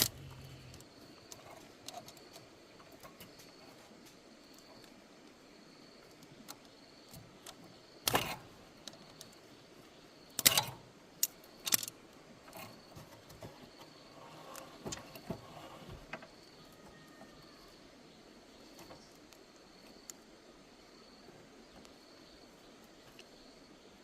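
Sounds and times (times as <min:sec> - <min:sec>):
tools and metal parts clicking: 0:00.0 - 0:03.5, 0:10.4 - 0:12.8.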